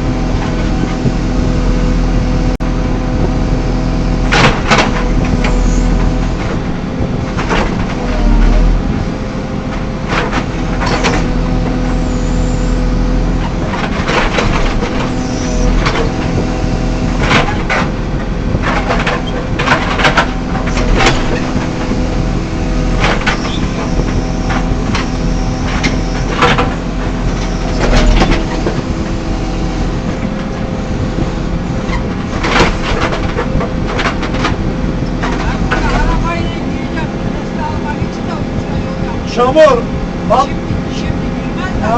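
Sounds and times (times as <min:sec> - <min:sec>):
diesel engine running: 0:00.0 - 0:41.9
metal clanks and knocks: 0:04.2 - 0:09.0, 0:09.7 - 0:12.0, 0:13.4 - 0:30.8, 0:31.4 - 0:36.3.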